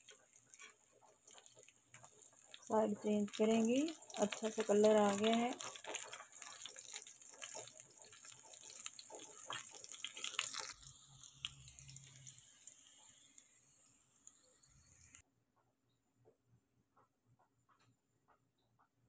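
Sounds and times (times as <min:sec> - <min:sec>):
food sizzling in hot oil: 0:00.0 - 0:15.2
spatula turning food: 0:00.0 - 0:15.2.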